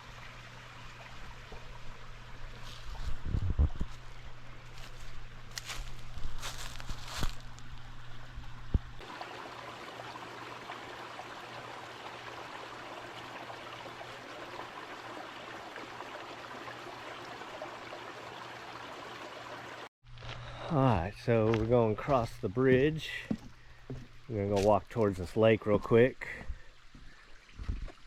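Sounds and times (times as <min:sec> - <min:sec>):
creek water flowing: 0:00.0 - 0:19.9, 0:21.4 - 0:28.0.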